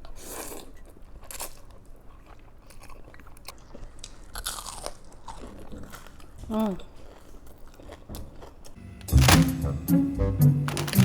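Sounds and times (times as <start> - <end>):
crunching fried chicken: 0.0 - 8.8.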